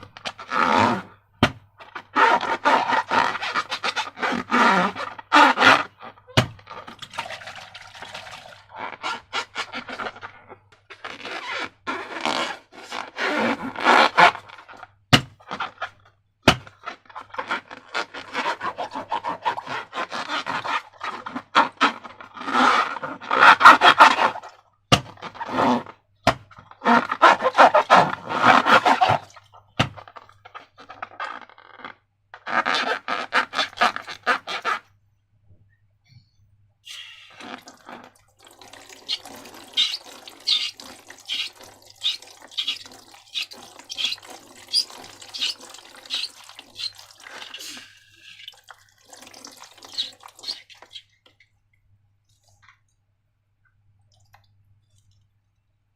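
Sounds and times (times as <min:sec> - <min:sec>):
slime squelching and crackling: 0:37.3 - 0:51.2.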